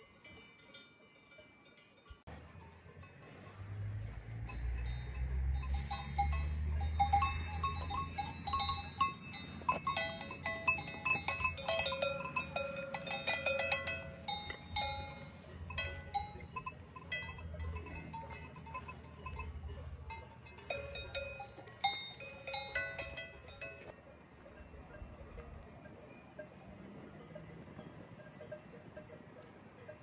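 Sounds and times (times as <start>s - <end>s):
cowbells clanking: 0.0s - 23.9s.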